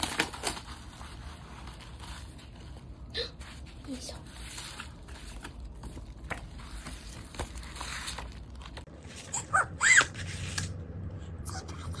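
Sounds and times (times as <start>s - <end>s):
packaging crinkling and rustling: 0.0s - 3.0s, 3.6s - 9.2s.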